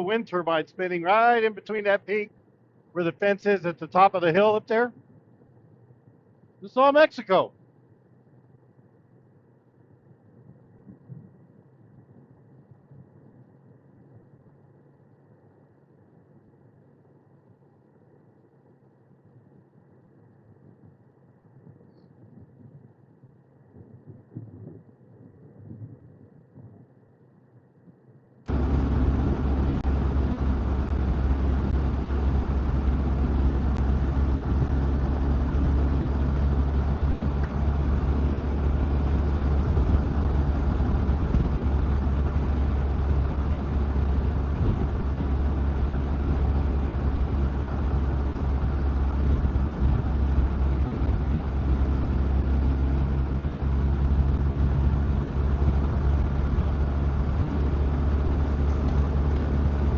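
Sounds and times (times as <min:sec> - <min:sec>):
motorcycle engine rumbling: 0:28.5 - 0:59.9.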